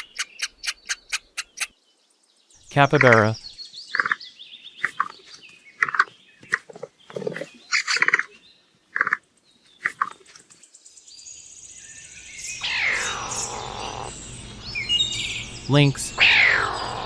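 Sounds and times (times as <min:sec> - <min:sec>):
capybara squeaking: 0:00.0 - 0:01.7, 0:12.6 - 0:14.2, 0:16.2 - 0:17.0.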